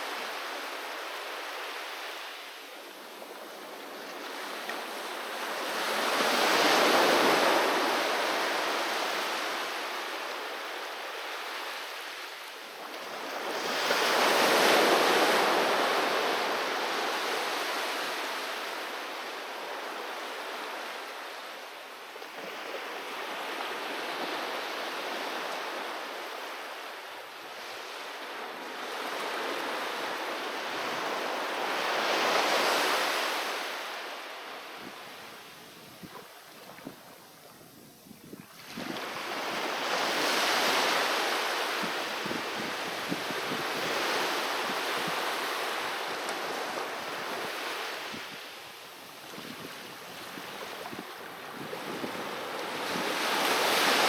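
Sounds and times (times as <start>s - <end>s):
sea waves breaking on beach: 0.0s - 21.6s, 22.3s - 37.4s, 38.4s - 54.0s
wind noise on microphone: 34.8s - 54.0s.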